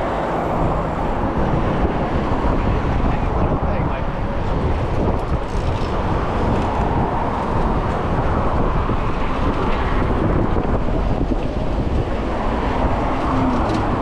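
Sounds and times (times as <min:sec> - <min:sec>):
road traffic noise: 0:00.0 - 0:14.0
wind rushing over microphone: 0:00.0 - 0:14.0.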